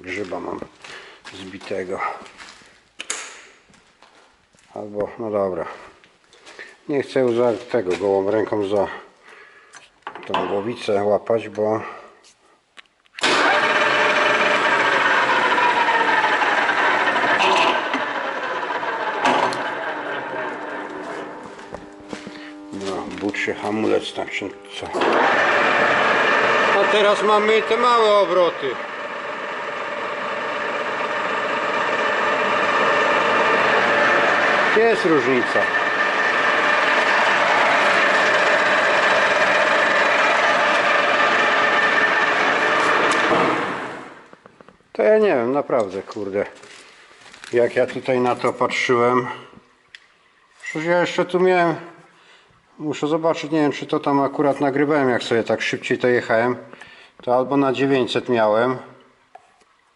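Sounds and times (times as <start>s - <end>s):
milling machine gear whine: 13.4s - 44.2s.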